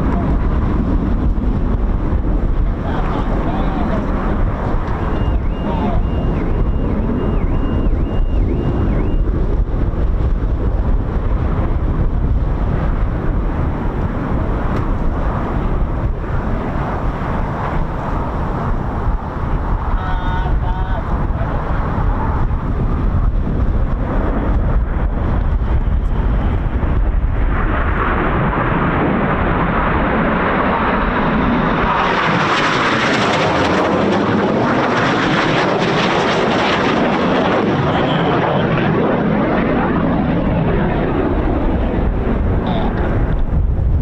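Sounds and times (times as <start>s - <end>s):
jets passing by: 0.0s - 44.0s
wind rumble on microphone: 0.0s - 44.0s.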